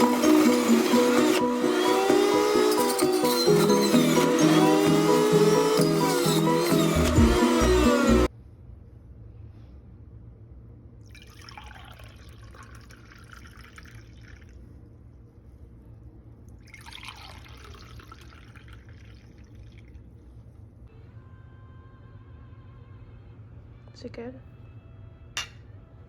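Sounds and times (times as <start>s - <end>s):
liquid sounds: 11.1s - 14.8s, 16.5s - 20.4s.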